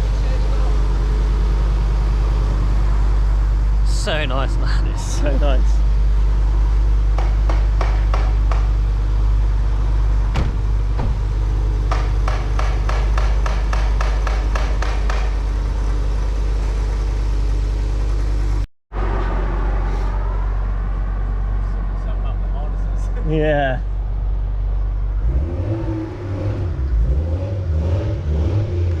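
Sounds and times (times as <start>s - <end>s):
car engine droning: 0.0s - 29.0s.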